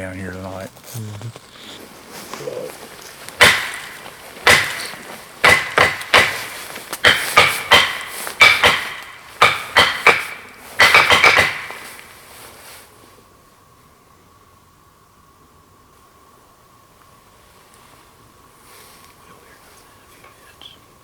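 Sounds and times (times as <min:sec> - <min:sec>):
sharp ringing knocks: 0:03.4 - 0:12.1.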